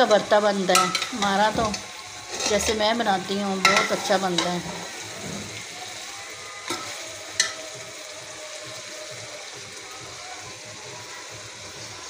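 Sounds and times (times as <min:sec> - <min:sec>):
curry sizzling in a pot: 0:00.0 - 0:12.0
metal spatula stirring: 0:00.7 - 0:05.7, 0:06.6 - 0:07.8.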